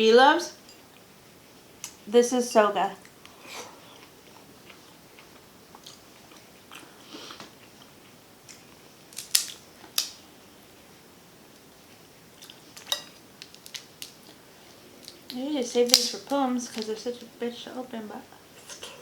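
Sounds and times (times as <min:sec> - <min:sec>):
person chewing: 0:03.0 - 0:10.1, 0:12.4 - 0:14.4.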